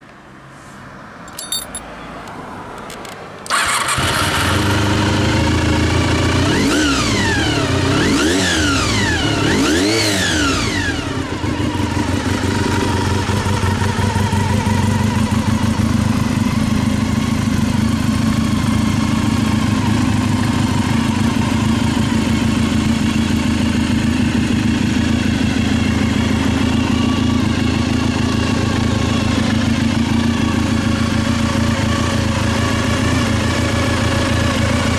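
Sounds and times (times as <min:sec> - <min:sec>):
motorcycle starter cranking: 0:02.8 - 0:05.2
motorcycle engine revving and idling: 0:03.0 - 0:34.9.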